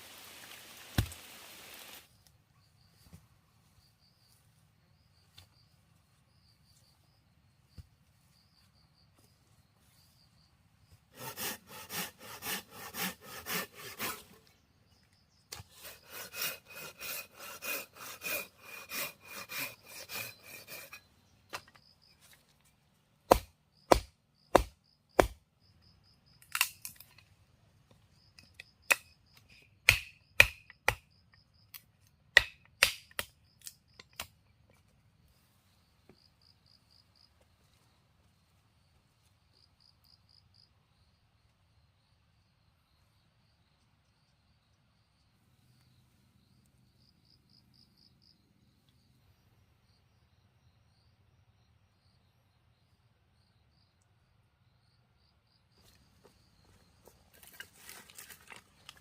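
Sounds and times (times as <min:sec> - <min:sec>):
crickets chirping: 0:00.0 - 0:59.0
saw cutting through wood: 0:11.1 - 0:14.5, 0:15.5 - 0:21.1.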